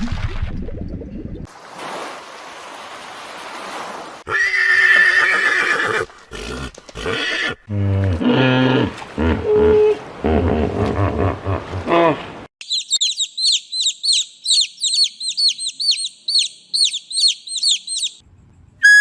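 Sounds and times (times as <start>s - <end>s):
horse whinnying: 4.3s - 7.6s.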